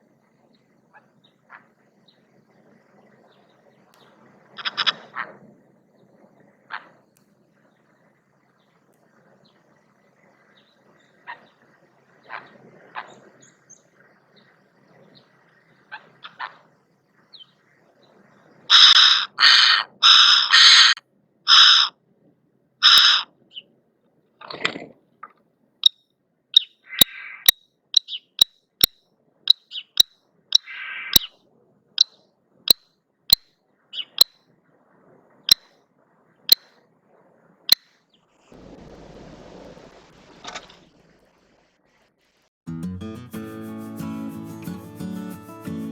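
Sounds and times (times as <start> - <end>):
birds harsh calls: 4.6 - 5.3, 18.7 - 21.9, 22.8 - 23.6, 26.6 - 28.4, 29.6 - 31.3
bird sharp clicks: 26.6 - 31.3.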